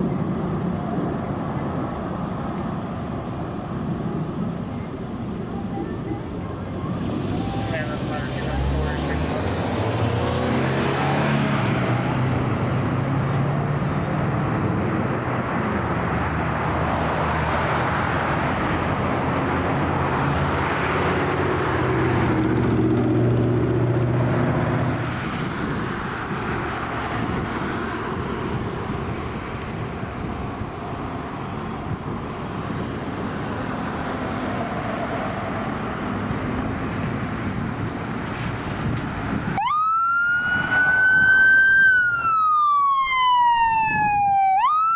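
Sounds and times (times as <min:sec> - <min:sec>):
road traffic noise: 0:00.0 - 0:44.9
siren wailing: 0:05.4 - 0:08.2, 0:39.6 - 0:44.9
diesel engine running: 0:18.2 - 0:39.6.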